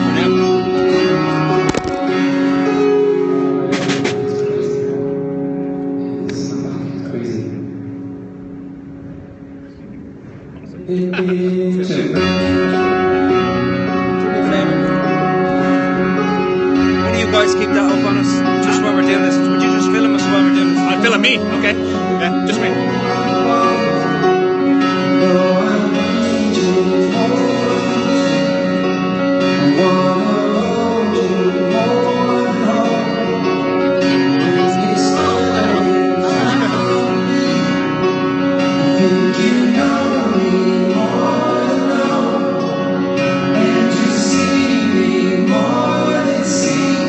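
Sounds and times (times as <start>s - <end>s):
guitar: 0.0s - 47.0s
person singing: 17.0s - 37.8s, 38.7s - 47.0s.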